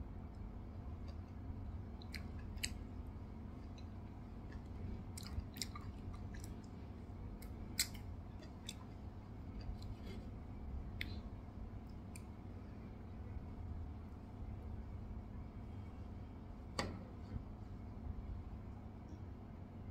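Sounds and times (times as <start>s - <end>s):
low steady hum: 0.0s - 19.9s
person chewing food: 0.4s - 12.3s
wet mouth clicks and smacks: 2.0s - 2.8s, 4.5s - 6.8s, 7.4s - 8.9s.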